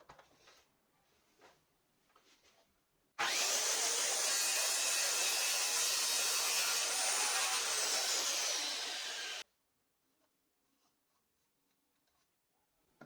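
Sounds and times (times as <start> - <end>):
electric jigsaw cutting wood: 3.2 - 9.4.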